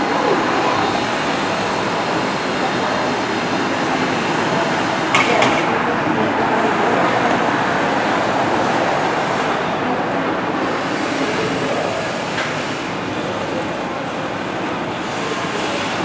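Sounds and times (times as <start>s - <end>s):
train rolling: 0.0s - 16.0s.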